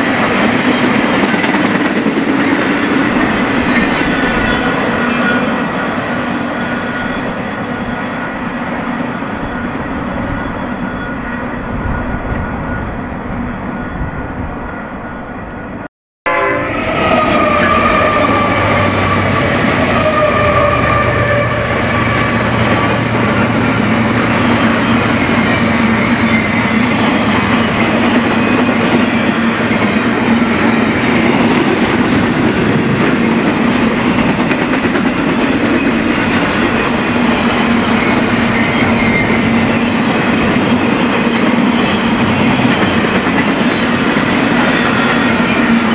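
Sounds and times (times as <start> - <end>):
train cars rumbling and clacking: 0.0 - 15.9, 16.7 - 45.9
train rolling noise: 0.0 - 45.9
locomotive horn: 16.2 - 26.9.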